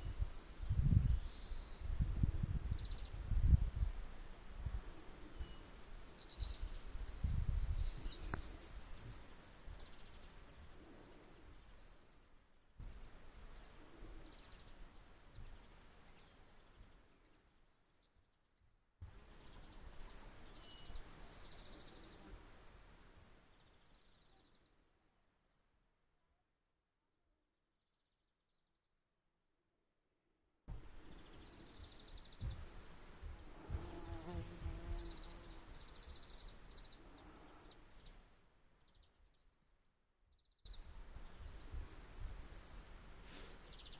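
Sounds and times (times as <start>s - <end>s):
small birds chirping: 0.0s - 3.9s, 4.8s - 22.6s, 23.4s - 24.9s, 30.8s - 43.9s
low wind rumble: 0.0s - 8.8s.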